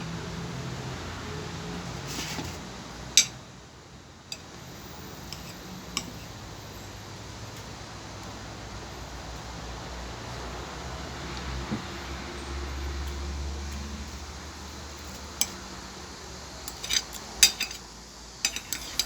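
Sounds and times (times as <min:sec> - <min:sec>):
cutlery clinking against a plate: 0:03.2 - 0:03.4, 0:05.2 - 0:06.4, 0:15.0 - 0:15.6, 0:16.6 - 0:19.0.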